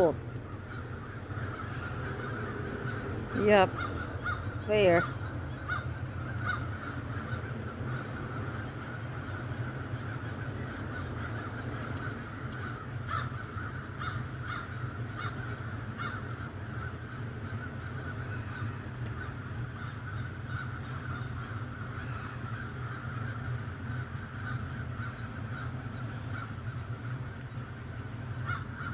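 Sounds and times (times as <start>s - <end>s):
birds chattering: 0.0s - 8.6s.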